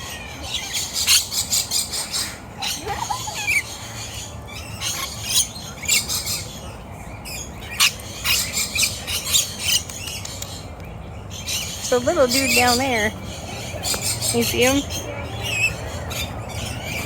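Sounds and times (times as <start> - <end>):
flock of lorikeets chirping: 0.0 - 17.0.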